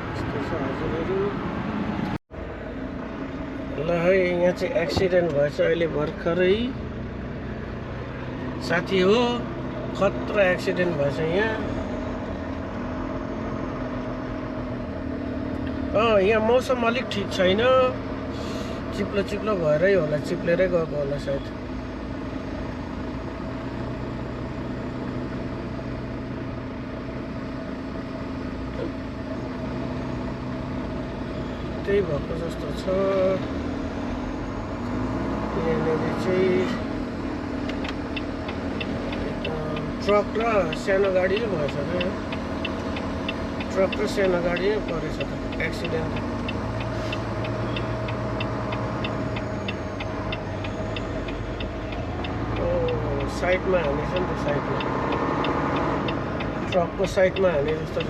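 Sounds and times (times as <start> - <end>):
road and tyre noise: 0.0 - 58.0
truck engine drone: 0.0 - 58.0
indicator flasher clicking: 37.6 - 58.0.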